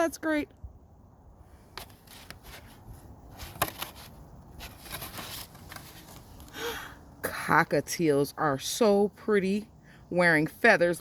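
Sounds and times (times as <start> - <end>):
paper pages rustling: 1.7 - 6.5
light clicks of pop-up book: 3.3 - 6.6.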